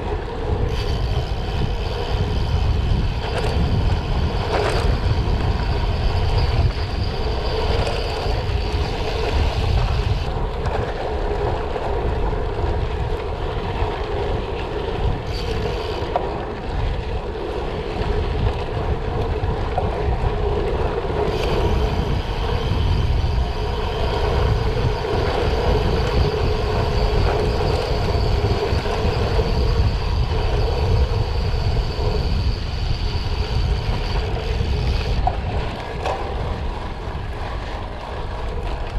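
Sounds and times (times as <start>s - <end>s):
bike tyres on gravel: 0.0s - 38.9s
wind buffeting microphone: 0.0s - 38.9s.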